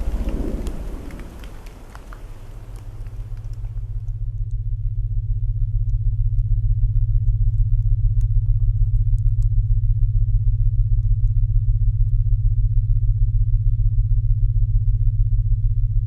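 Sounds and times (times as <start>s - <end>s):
rain: 0.0s - 4.2s
faint crackles: 0.0s - 4.6s
low pulsing synthetic tone: 4.1s - 16.0s.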